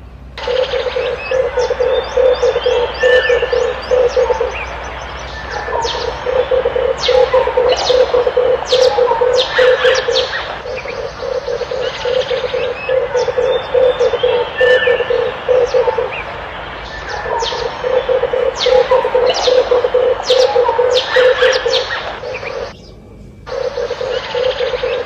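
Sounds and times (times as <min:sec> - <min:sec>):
dove cooing: 0:00.4 - 0:22.8, 0:23.5 - 0:25.0
small birds chirping: 0:00.4 - 0:25.0.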